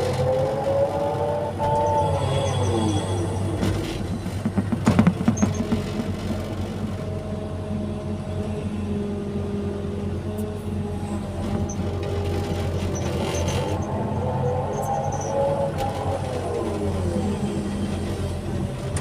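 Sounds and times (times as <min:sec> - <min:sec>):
diesel engine under load: 0:00.0 - 0:19.0
hydraulic whine: 0:00.0 - 0:19.0.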